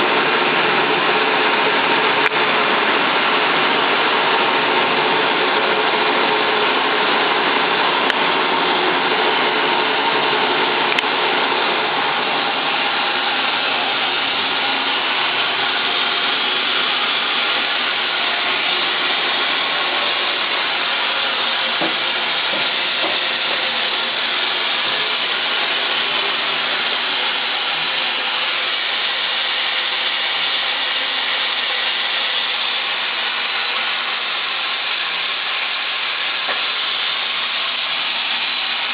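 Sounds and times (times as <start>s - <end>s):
saw motor running: 0.0s - 38.9s.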